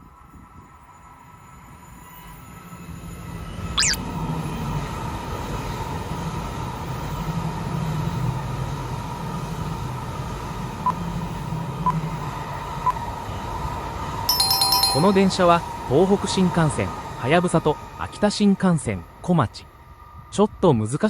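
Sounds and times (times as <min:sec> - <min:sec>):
trains rumbling by: 0:00.0 - 0:21.0
brief high squeal: 0:03.8 - 0:04.0.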